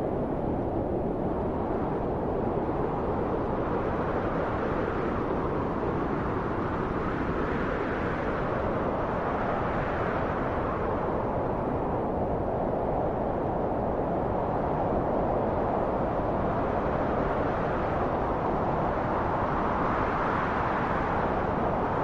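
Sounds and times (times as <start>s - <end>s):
rushing wind: 0.0s - 22.0s.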